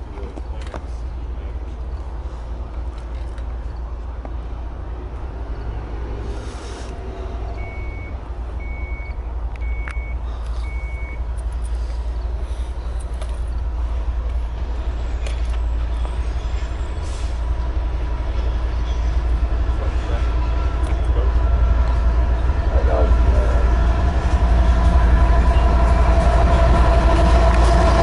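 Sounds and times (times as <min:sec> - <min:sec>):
train rumbling: 0:00.0 - 0:28.0
short electronic beeps: 0:07.6 - 0:11.2.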